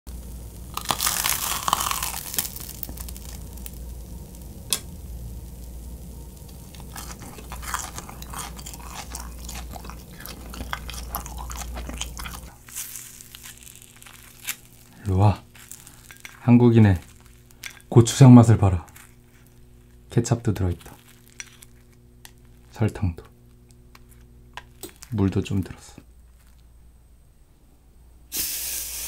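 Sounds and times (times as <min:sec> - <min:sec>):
crackly chewing: 0:00.6 - 0:04.9, 0:06.3 - 0:26.7
biting rice cake: 0:00.7 - 0:03.8, 0:06.7 - 0:18.0.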